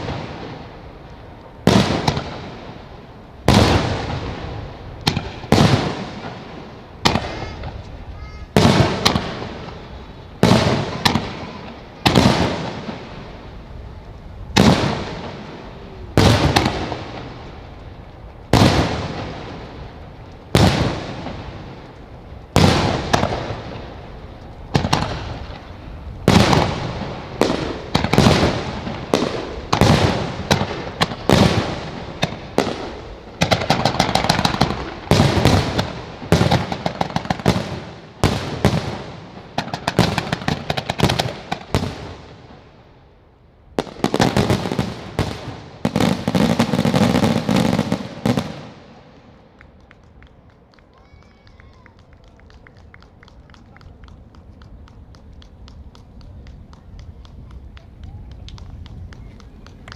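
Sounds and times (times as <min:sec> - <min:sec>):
rapid crackling bangs: 0:00.0 - 0:42.6
firework shells booming: 0:00.0 - 0:42.8, 0:43.8 - 0:50.2.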